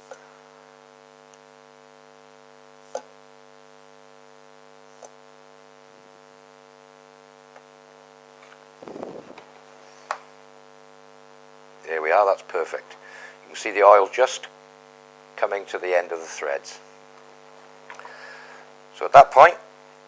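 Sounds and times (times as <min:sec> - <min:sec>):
electrical hum: 0:00.0 - 0:20.0
rough rustling noise: 0:08.8 - 0:10.0.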